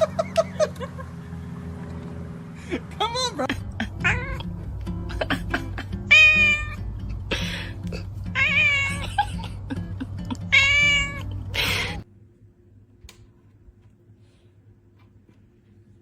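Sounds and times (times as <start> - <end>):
background music: 3.5 - 12.0
cat meowing: 4.0 - 4.5, 6.1 - 6.8, 8.3 - 9.1, 10.4 - 12.0
breathy bursts: 7.2 - 8.1.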